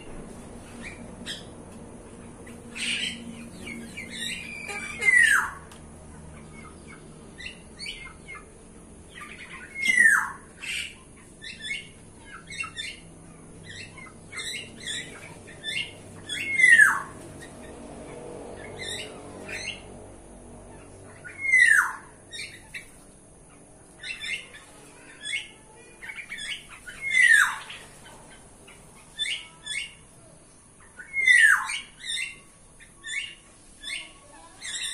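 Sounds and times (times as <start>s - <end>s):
high bird chirps: 2.6s - 5.6s, 9.1s - 17.2s, 24.0s - 28.1s, 30.8s - 34.9s.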